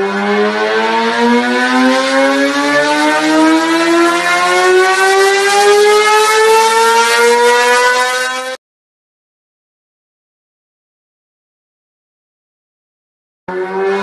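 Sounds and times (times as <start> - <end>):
motorcycle engine at full throttle: 0.0 - 8.6, 13.5 - 14.0.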